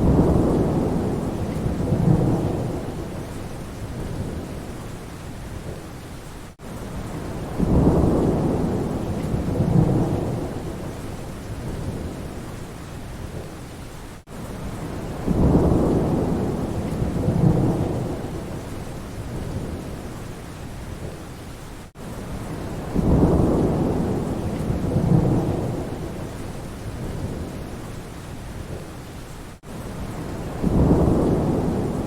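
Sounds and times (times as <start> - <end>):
low roll of thunder: 0.0 - 4.8, 7.0 - 12.5, 14.6 - 20.1, 22.3 - 27.8, 29.6 - 32.0
steady rain: 0.0 - 32.0.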